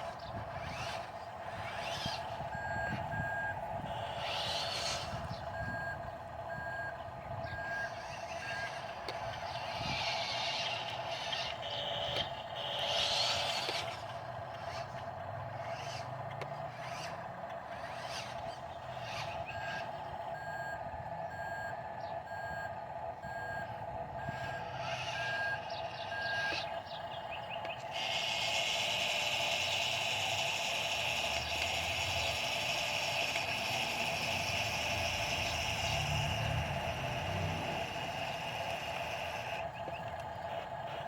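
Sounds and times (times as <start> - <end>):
truck engine running: 0.0 - 41.0
reversing alarm beeping: 1.6 - 13.8, 19.0 - 28.9.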